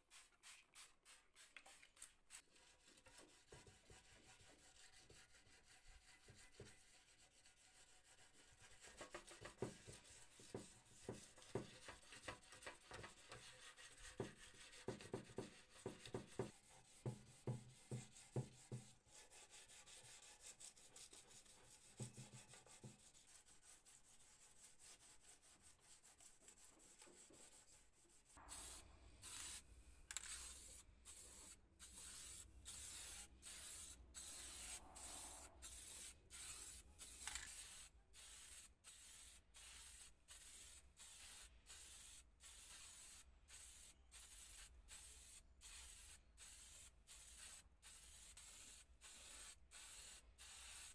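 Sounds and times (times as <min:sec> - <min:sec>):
hand sanding metal: 0:02.5 - 0:37.8
spray paint can hissing: 0:28.5 - 0:50.9.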